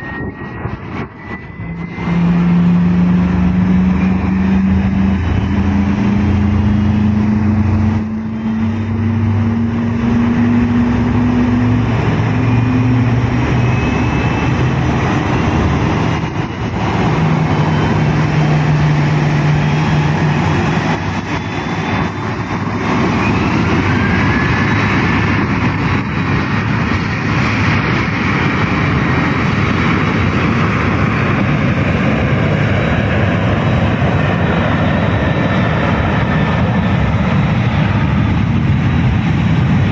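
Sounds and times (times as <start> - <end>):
low hum: 0.0 - 26.5
jet engine whine: 0.0 - 39.9
jet engines rushing: 0.0 - 39.9.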